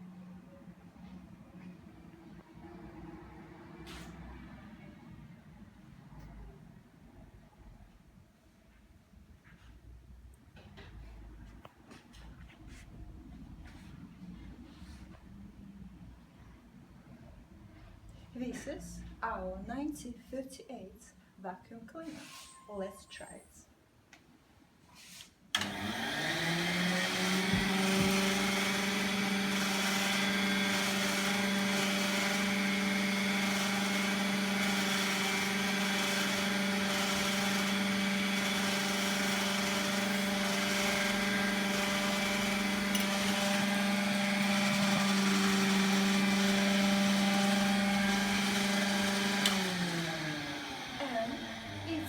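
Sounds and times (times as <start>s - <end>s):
vacuum cleaner motor humming: 25.6s - 52.0s.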